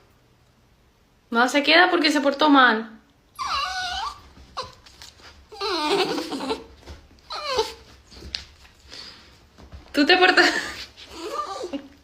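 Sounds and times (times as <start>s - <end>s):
dog whining and yowling: 3.3s - 8.3s, 11.1s - 12.0s.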